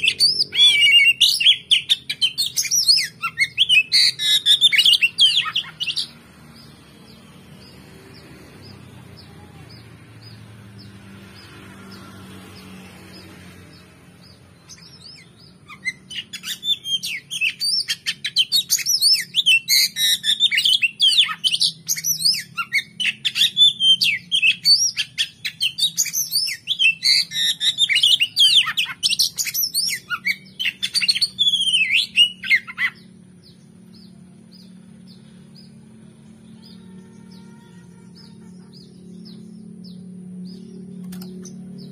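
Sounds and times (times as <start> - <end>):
bird singing whistles: 0.0 - 6.1, 14.7 - 33.0.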